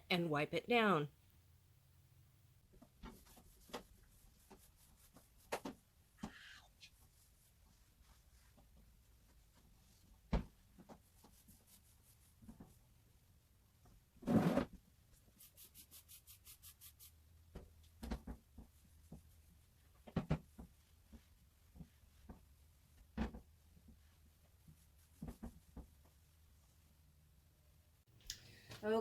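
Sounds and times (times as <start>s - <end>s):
rubbing strokes: 3.0s - 12.8s, 14.3s - 17.2s, 18.6s - 26.8s.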